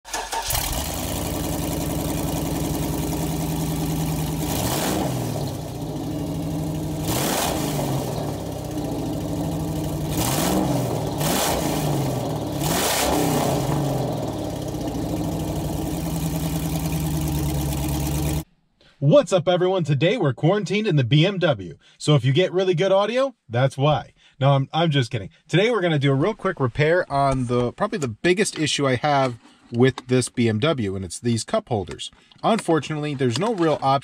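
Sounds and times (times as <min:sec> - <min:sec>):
car engine idling and revving: 0:00.1 - 0:18.4.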